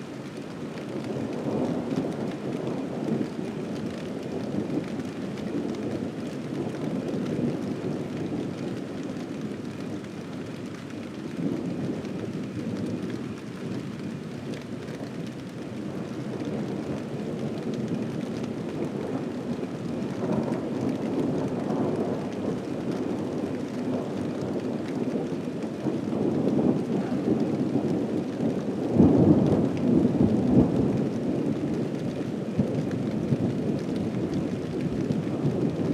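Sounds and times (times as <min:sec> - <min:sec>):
rain falling: 0:00.0 - 0:35.9
thunder rumbling: 0:00.9 - 0:35.9.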